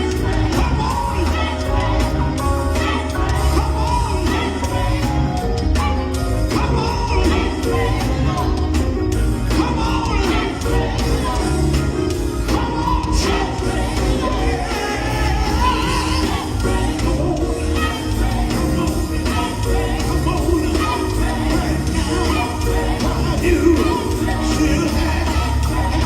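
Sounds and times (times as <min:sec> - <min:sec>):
crowd shouting: 0:00.0 - 0:08.7
gospel band with singing: 0:00.0 - 0:26.0.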